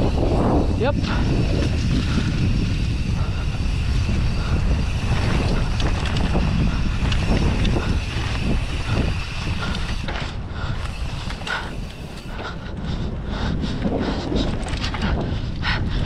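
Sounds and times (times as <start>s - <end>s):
bike rattling and knocking: 0.0s - 16.0s
wind rumbling on microphone: 0.0s - 16.0s.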